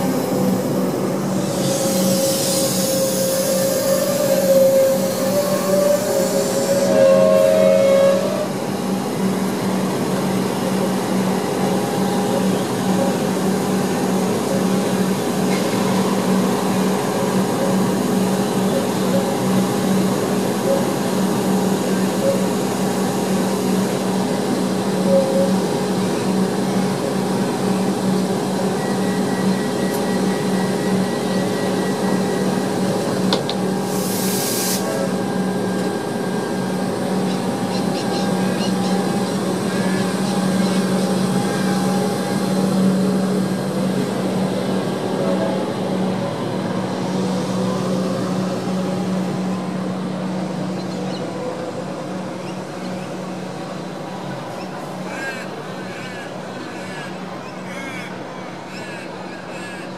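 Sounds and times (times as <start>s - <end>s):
electric train humming: 0.0s - 59.9s
train pulling away: 0.0s - 59.9s
air hiss: 33.8s - 35.0s.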